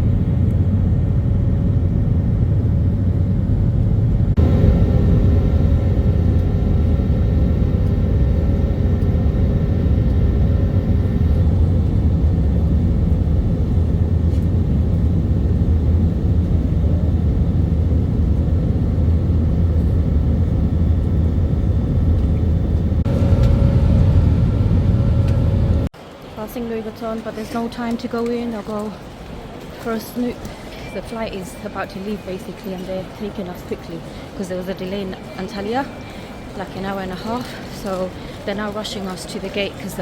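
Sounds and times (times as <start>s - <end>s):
faint steady whine: 0.0s - 25.9s
jet airliner cabin rumble: 0.0s - 25.9s.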